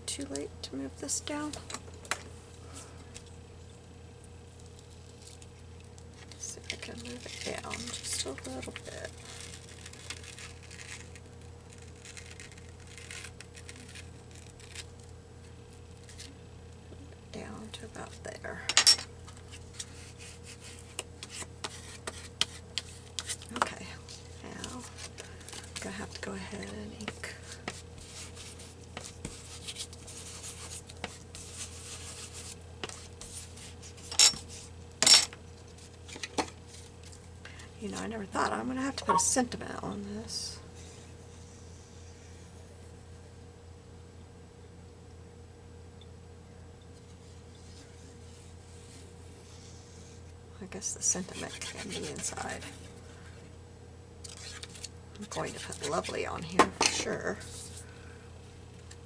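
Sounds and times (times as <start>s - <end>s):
low electrical hum: 0.0s - 59.0s
soft scuffing on paper: 27.4s - 34.7s
paper rustling and scraping: 54.3s - 54.9s.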